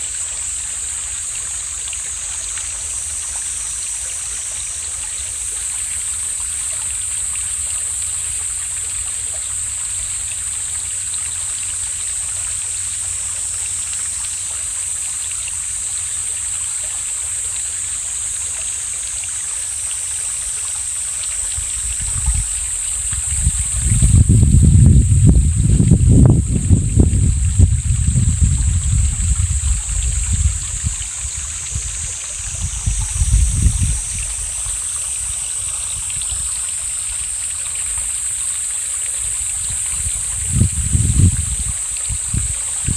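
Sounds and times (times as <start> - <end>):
stream flowing: 0.0 - 42.9
wind buffeting microphone: 21.4 - 37.2, 39.2 - 42.9.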